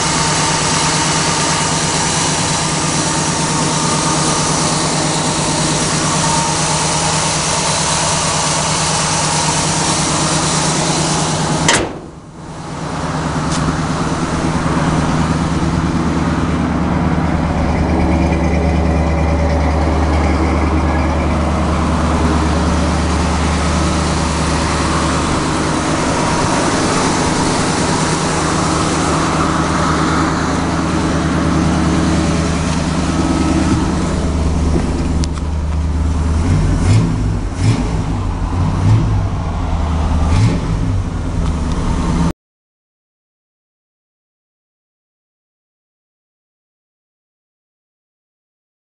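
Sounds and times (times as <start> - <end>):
car engine idling: 0.0 - 42.3
sharp click: 11.7 - 12.2.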